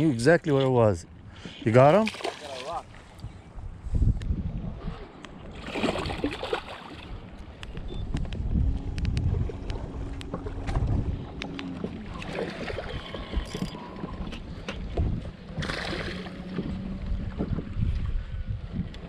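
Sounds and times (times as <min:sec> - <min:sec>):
wind rumbling on microphone: 0:02.8 - 0:19.0
low steady hum: 0:05.3 - 0:19.0.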